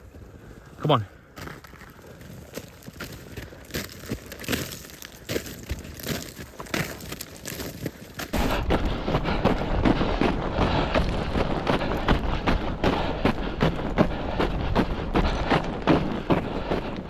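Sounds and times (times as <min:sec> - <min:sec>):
rapid uneven thumps and crunches: 0:01.4 - 0:17.0
steady low rumble: 0:08.3 - 0:17.0.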